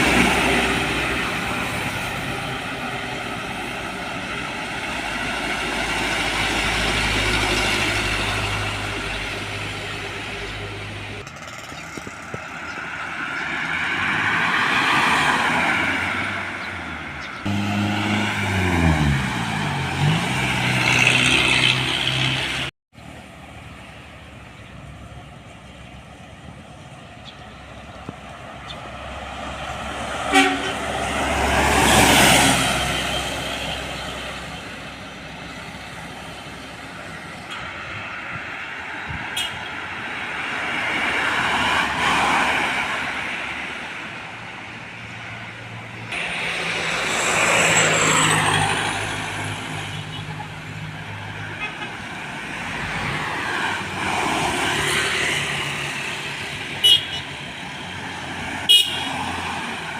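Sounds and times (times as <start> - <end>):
heavy trucks passing: 0.0 - 59.9
vehicle passing: 13.2 - 22.7, 27.5 - 37.4, 45.0 - 59.9.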